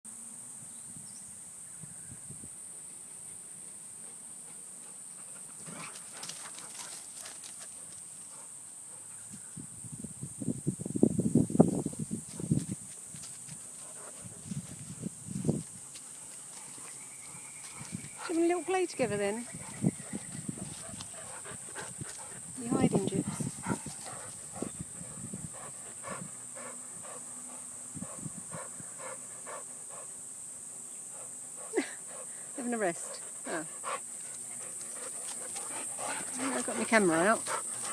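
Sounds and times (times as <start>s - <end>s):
high insect drone: 0.1s - 37.9s
steady high-pitched hiss: 0.1s - 37.9s
dog panting: 13.5s - 14.9s, 15.8s - 30.2s, 31.0s - 37.9s
rustling clicking steps: 33.9s - 37.9s.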